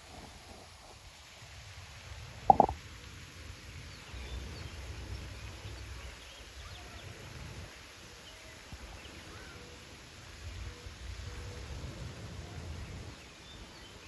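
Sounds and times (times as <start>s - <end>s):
wind rumble on microphone: 0.0s - 2.8s.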